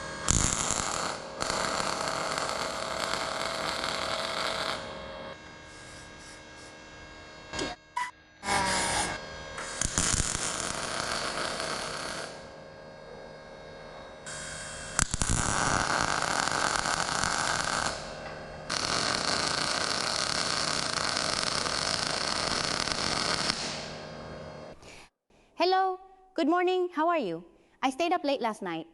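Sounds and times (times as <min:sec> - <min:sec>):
welding arc hissing and crackling: 0:00.0 - 0:07.8, 0:08.4 - 0:12.6, 0:14.2 - 0:24.6.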